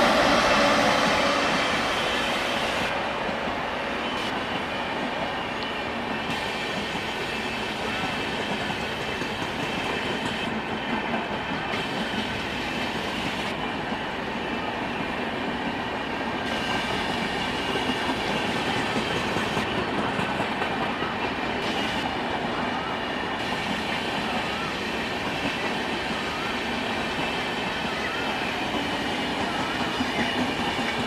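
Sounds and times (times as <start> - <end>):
train rolling on rails: 0.0 - 31.0.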